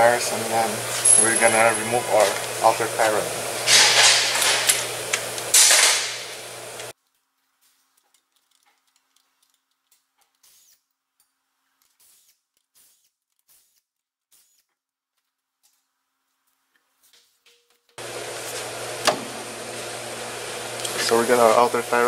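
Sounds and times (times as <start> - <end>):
faint clicks and knocks: 6.8 - 10.4.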